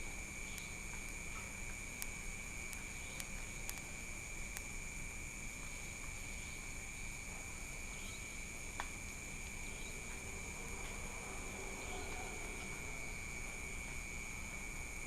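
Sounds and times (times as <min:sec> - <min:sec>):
crickets trilling: 0:00.0 - 0:15.0
faint sharp clicks: 0:00.5 - 0:03.9, 0:04.5 - 0:04.7.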